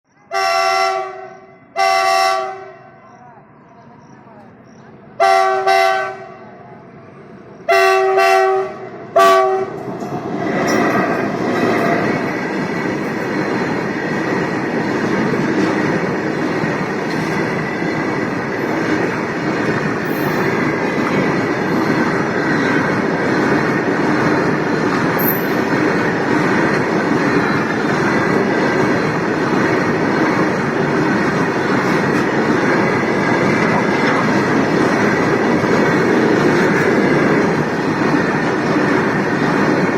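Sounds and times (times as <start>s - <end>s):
diesel locomotive horn: 0.2s - 3.1s, 5.2s - 6.6s, 7.6s - 9.8s
goods train rumbling past: 0.3s - 39.9s.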